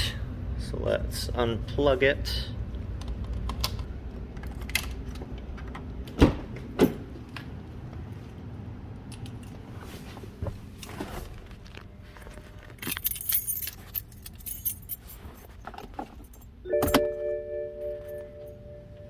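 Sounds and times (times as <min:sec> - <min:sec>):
metal parts jangling and rattling: 0:12.2 - 0:17.0
ringing chime-like tone: 0:16.7 - 0:19.0.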